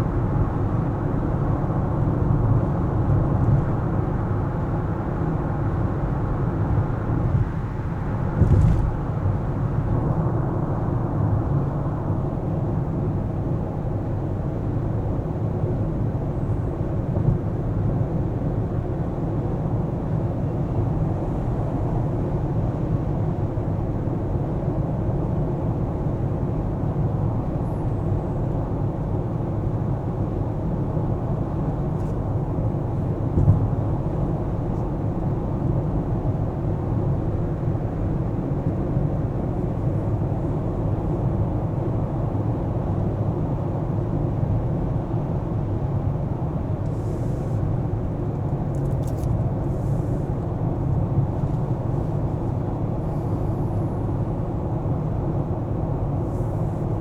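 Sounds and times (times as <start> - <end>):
car engine and road rumble: 0.0 - 57.0
car bumps: 8.4 - 9.1, 33.3 - 33.8.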